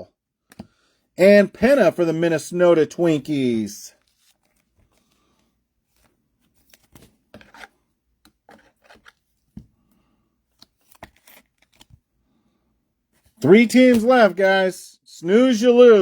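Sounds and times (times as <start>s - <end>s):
wrappers rustling: 3.9s - 5.3s.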